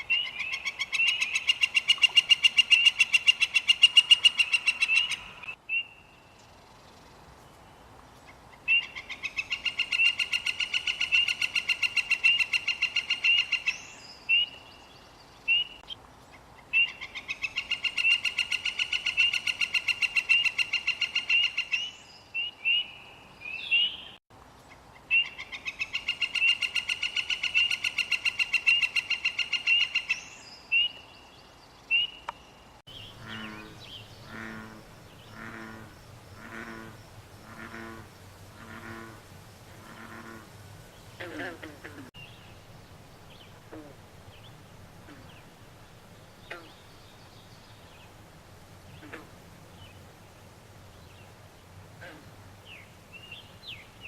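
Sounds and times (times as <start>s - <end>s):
low pulsing croaking: 32.9s - 45.7s.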